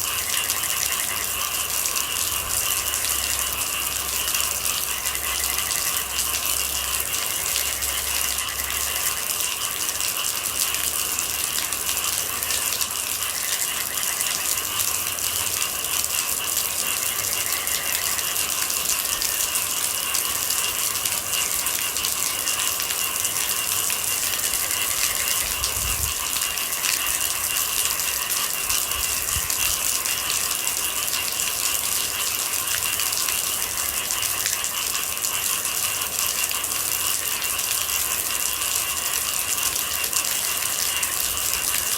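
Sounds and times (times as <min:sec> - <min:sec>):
steady rain patter: 0:00.0 - 0:41.9.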